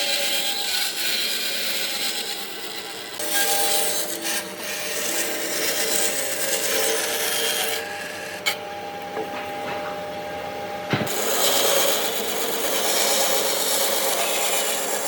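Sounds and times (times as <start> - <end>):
tool scraping across wood: 11.0 - 15.0.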